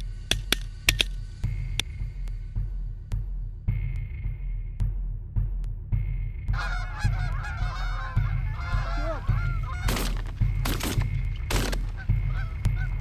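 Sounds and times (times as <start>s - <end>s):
geese honking: 6.5s - 13.0s
shotgun shots: 9.9s - 12.0s.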